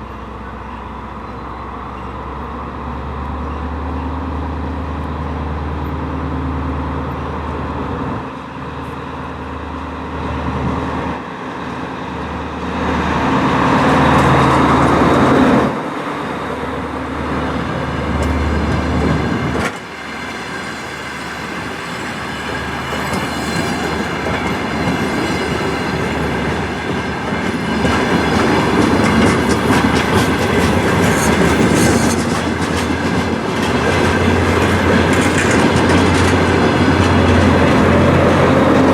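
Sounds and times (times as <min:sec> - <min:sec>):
wheels clattering over rail joints: 0:22.6 - 0:38.9.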